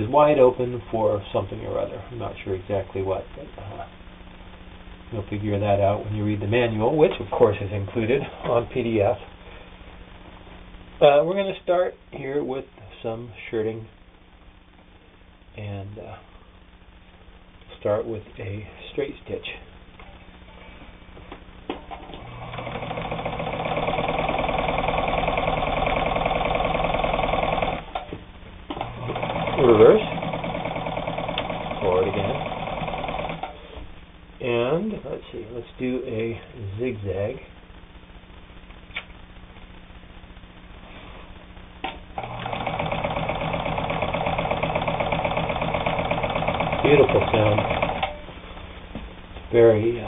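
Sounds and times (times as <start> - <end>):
faint hum: 0.0 - 50.0
sewing machine stitching: 22.0 - 28.1, 28.8 - 33.6, 42.2 - 48.2
sewing machine clicks: 28.8 - 33.6, 42.2 - 48.2.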